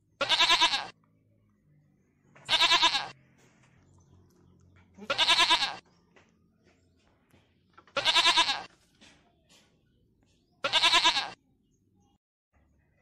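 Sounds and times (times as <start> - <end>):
goat bleating: 0.2 - 1.0, 2.5 - 3.2, 5.0 - 5.8, 7.9 - 8.7, 10.6 - 11.4.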